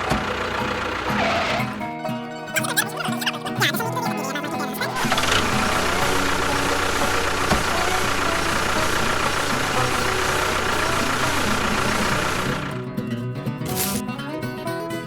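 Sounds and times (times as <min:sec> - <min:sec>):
engine running: 0:00.0 - 0:14.1.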